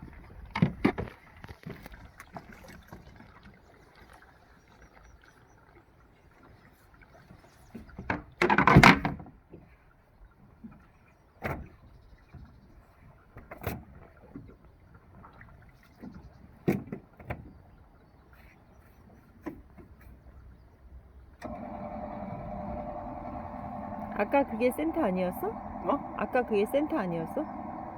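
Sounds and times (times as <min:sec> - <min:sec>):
knocks and clunks on boat: 0:00.0 - 0:03.5, 0:07.2 - 0:20.8.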